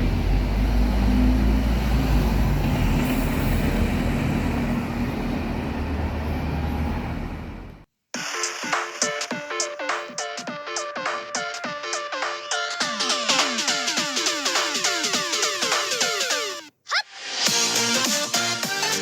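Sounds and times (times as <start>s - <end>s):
bus diesel engine droning: 0.0s - 7.8s
electronic music: 8.2s - 19.0s.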